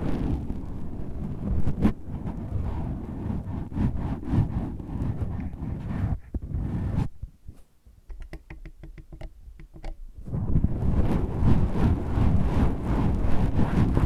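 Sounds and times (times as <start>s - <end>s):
rubbing on microphone windscreen: 0.0s - 7.7s, 10.2s - 14.0s
quick light taps: 8.1s - 10.0s.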